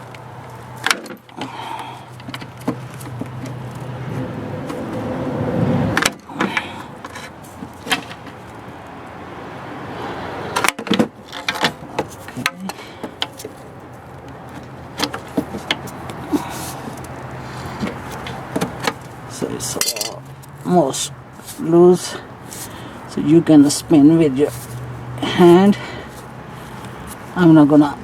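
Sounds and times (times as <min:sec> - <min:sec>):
metallic clicks and knocks: 0:00.0 - 0:01.5, 0:10.6 - 0:16.2.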